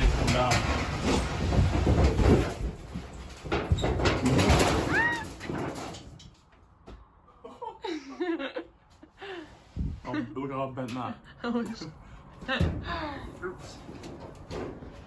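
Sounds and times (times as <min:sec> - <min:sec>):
wall cracking and scraping: 0:00.0 - 0:06.5.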